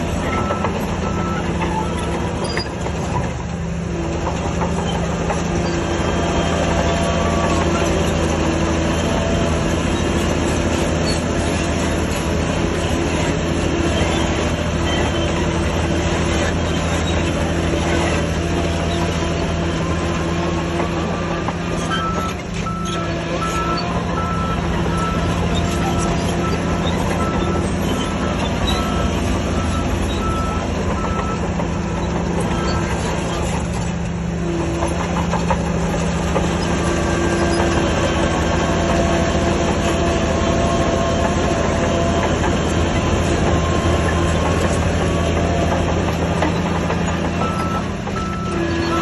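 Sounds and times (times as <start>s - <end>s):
heavy diesel machine running: 0.0s - 49.0s
reversing alarm beeping: 0.1s - 2.7s, 21.0s - 33.3s, 47.4s - 49.0s.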